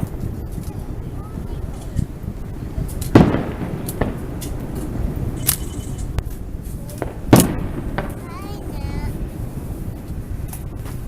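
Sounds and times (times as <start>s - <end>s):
smaller firework bangs and pops: 0.0s - 11.0s
firework shell boom: 2.8s - 9.3s.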